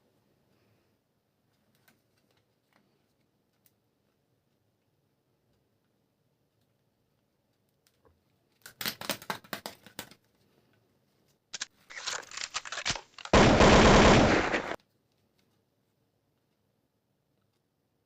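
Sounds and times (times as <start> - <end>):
quick clicks: 11.6 - 14.8
toy gun machine-gun rattle: 11.6 - 14.8.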